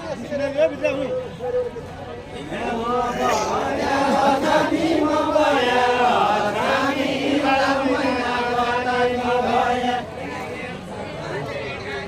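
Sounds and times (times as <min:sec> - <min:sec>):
group of voices chanting: 0:02.5 - 0:10.5.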